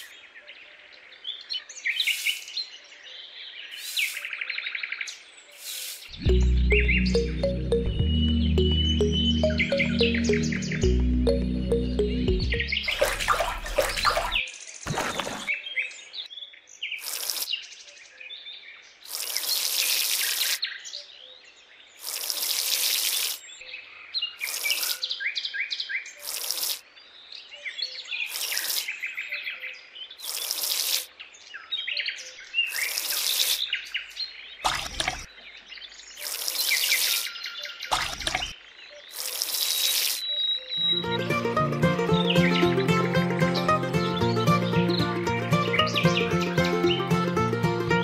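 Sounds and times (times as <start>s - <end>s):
birds chirping and singing: 0.0s - 19.0s, 40.2s - 48.0s
music: 6.2s - 14.4s, 40.8s - 48.0s.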